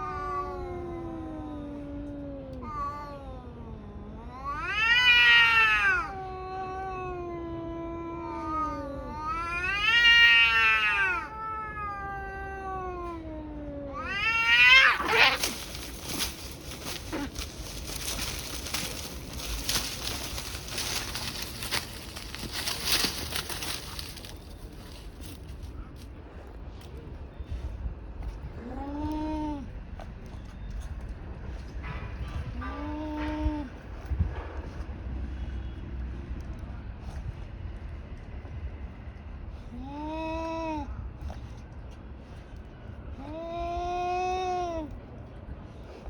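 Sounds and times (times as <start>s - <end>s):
cats yowling: 0.0s - 25.7s
cats scuffling: 14.1s - 26.2s.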